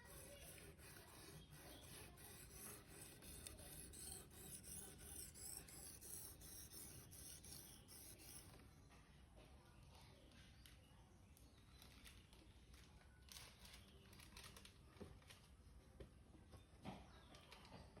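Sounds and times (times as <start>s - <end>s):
knife blade on sharpener: 0.0s - 8.5s.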